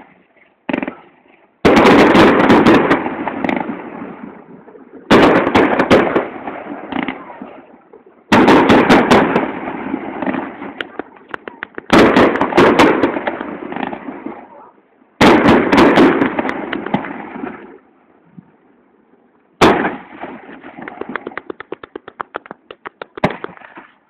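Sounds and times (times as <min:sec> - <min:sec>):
fireworks bangs and cracks: 0:00.0 - 0:17.8, 0:19.6 - 0:24.0
rapid string of pops: 0:10.2 - 0:12.5, 0:16.4 - 0:17.0, 0:20.8 - 0:23.8.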